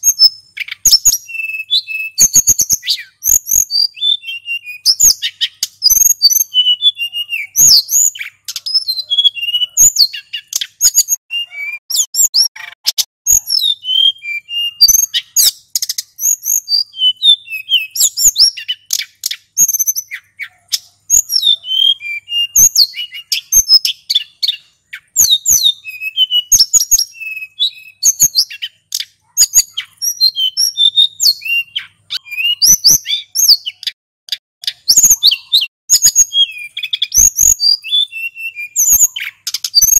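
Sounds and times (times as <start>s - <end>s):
bird singing whistled twittering notes: 0.0s - 34.0s, 34.6s - 39.9s
sharp bird clicks: 10.0s - 11.2s, 17.8s - 21.3s, 31.8s - 38.0s, 38.8s - 39.9s.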